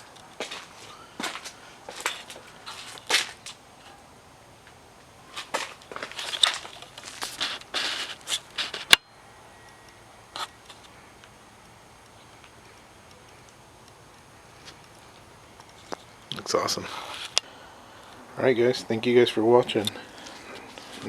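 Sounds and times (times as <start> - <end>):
faint steady hiss: 0.0 - 21.0
short scuffs and clicks: 0.2 - 3.6.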